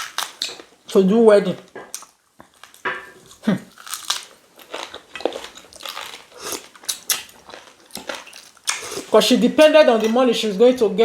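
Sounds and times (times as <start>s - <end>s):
teeth crunching and clicking: 0.0s - 1.0s, 1.6s - 9.2s
chewing and biting meat: 1.8s - 9.1s.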